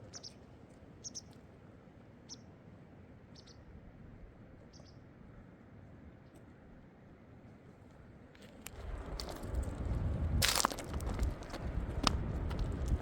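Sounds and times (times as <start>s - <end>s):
small bird chirping: 0.0s - 0.4s, 1.0s - 1.3s, 3.3s - 3.6s, 4.7s - 5.0s
low background rumble: 8.6s - 13.0s.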